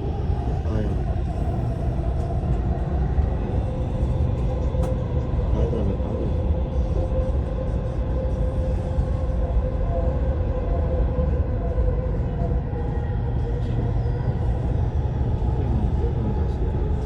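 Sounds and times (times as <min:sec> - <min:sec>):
train drive whine: 0:00.0 - 0:17.0
train low rumble: 0:00.0 - 0:17.0.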